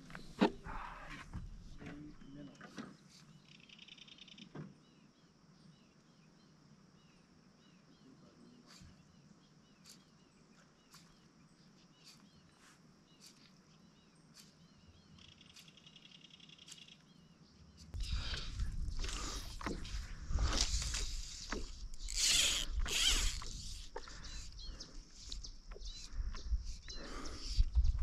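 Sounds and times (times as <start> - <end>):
small birds chirping: 0.0 - 28.0
buzzy bird trill: 20.6 - 27.7.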